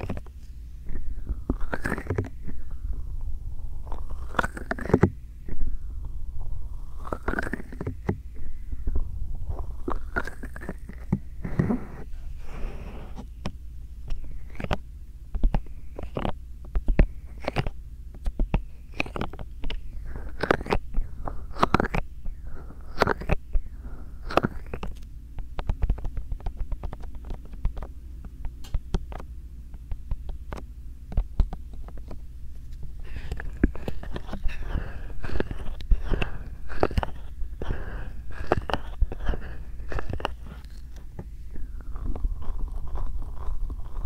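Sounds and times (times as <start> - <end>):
steady low hum: 0.0 - 44.0
hands rubbing microphone: 31.5 - 44.0.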